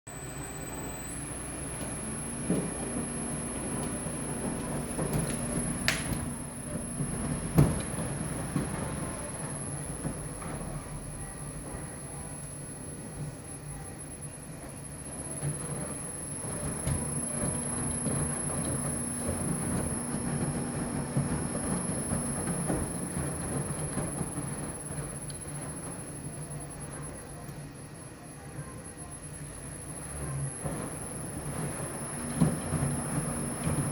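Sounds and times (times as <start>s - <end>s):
low motor hum: 0.1s - 27.8s, 28.4s - 33.9s
washing machine drum tumbling: 0.7s - 13.5s, 14.4s - 27.9s, 28.9s - 33.9s.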